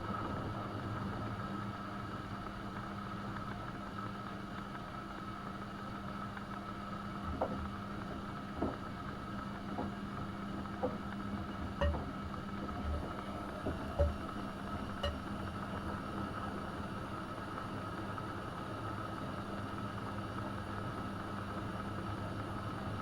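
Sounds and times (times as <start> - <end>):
washing machine motor hum: 0.0 - 23.0
soft low thumps and clicks: 10.8 - 14.3.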